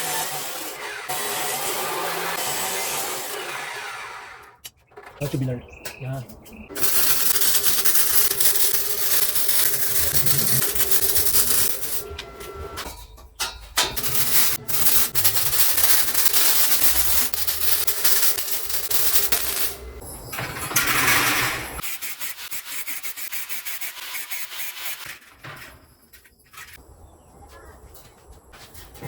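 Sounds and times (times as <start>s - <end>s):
handheld power tool running: 0.0s - 4.6s, 6.8s - 12.7s, 14.0s - 19.9s.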